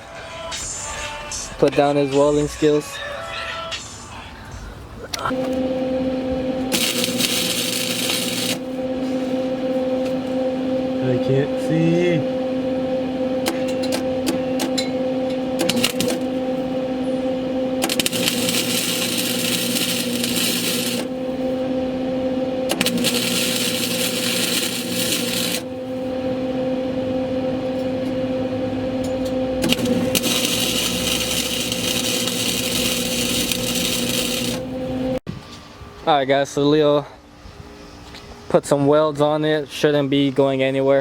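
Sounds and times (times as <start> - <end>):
electrical hum: 0.0 - 38.6
crackling welding arc: 6.6 - 8.7, 15.5 - 16.7, 17.8 - 21.6, 22.7 - 26.1, 29.6 - 35.2.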